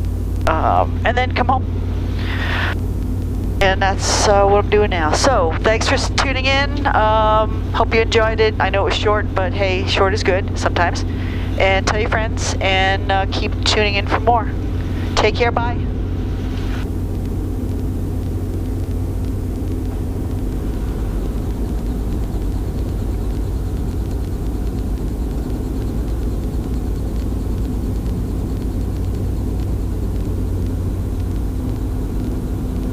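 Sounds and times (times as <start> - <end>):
helicopter engine and rotors running: 0.0 - 32.9.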